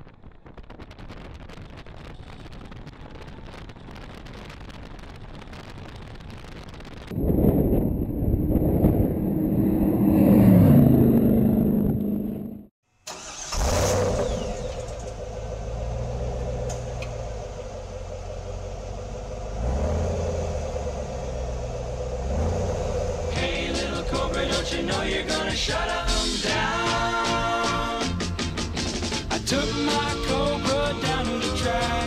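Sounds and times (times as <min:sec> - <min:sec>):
car engine passing at speed: 0:08.2 - 0:12.7, 0:13.6 - 0:26.7
car engines idling: 0:11.0 - 0:32.0.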